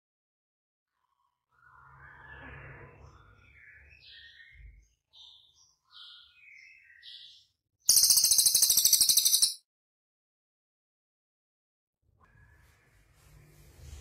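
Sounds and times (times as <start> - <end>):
songbird chirping: 1.5 - 9.6
fast rattling bird trill: 7.9 - 9.6.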